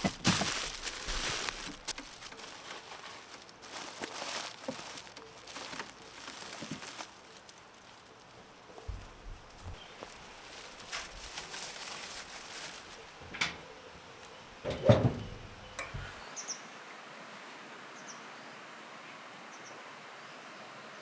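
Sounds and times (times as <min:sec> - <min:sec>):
outdoor background noise: 0:00.0 - 0:21.0
heavy thump: 0:14.6 - 0:16.2
light knocks: 0:14.6 - 0:16.2.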